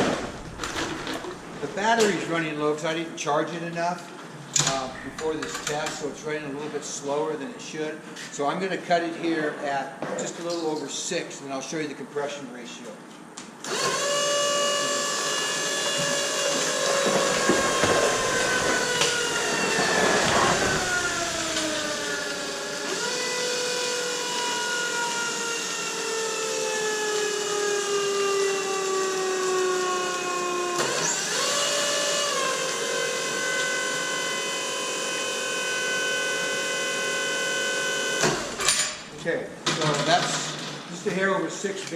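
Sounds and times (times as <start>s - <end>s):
electric motor whine: 13.7s - 38.6s
crackling: 16.8s - 22.2s.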